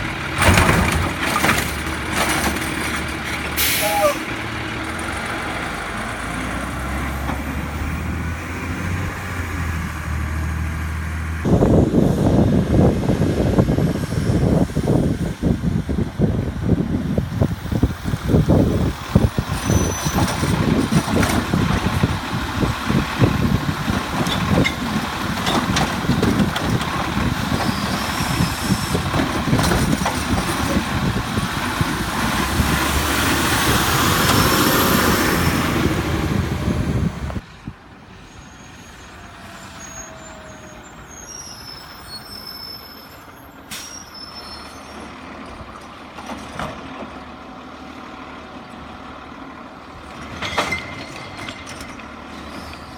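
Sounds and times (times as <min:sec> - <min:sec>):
garbage truck engine running: 0:00.0 - 0:10.6, 0:11.5 - 0:37.4.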